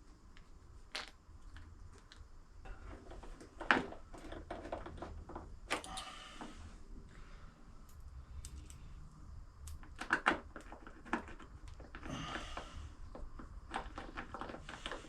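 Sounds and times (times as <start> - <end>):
clicks and taps of parts handled: 7.9 - 8.8.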